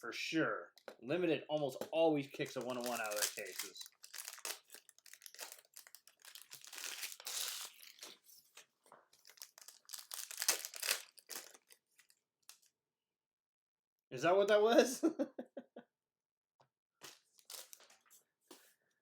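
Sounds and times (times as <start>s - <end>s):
card pack wrappers tearing and crinkling: 2.2s - 8.3s, 9.1s - 12.7s, 17.0s - 17.9s.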